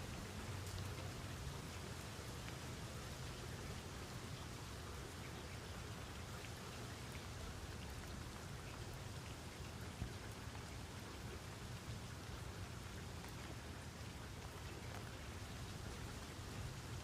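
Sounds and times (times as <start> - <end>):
steady rain falling: 0.0 - 17.0
water drip: 0.0 - 17.0.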